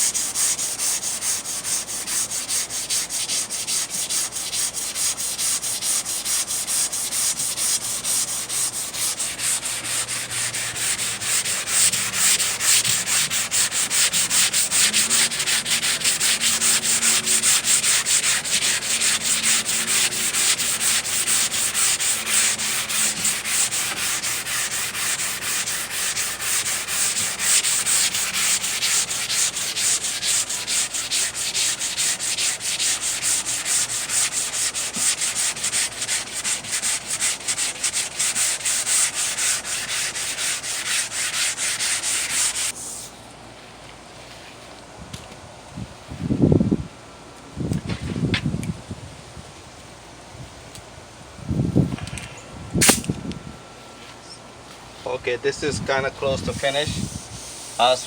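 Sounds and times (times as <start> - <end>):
sandpaper rubbing on filler: 0.0 - 43.1, 56.3 - 58.0.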